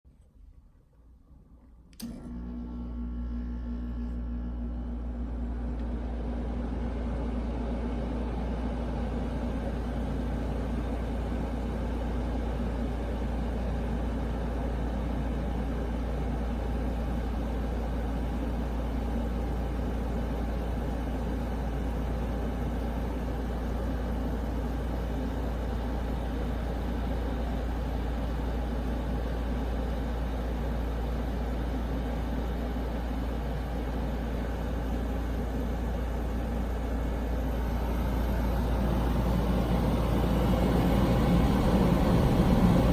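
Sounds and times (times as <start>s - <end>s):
air conditioner humming: 32.2s - 42.9s.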